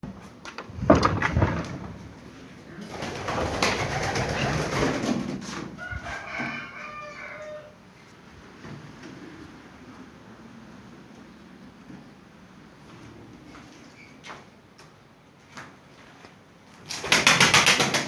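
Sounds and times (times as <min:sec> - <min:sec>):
rustling and movement: 0:00.1 - 0:05.8.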